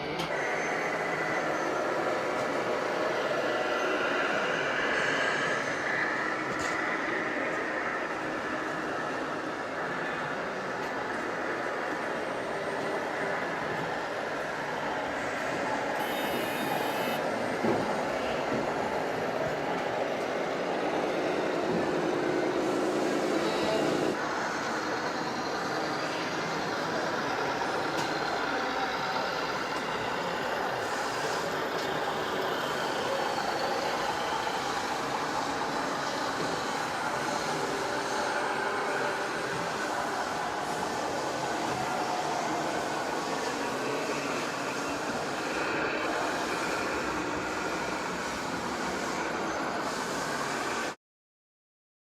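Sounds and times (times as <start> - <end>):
model truck engine drone: 0.0 - 51.0
whirr of small motors and gearing: 16.0 - 17.2.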